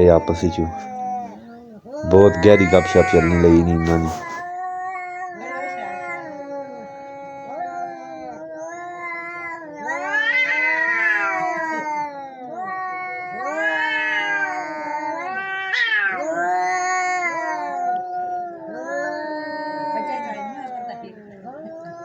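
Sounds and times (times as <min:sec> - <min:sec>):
cats yowling: 0:00.0 - 0:22.0.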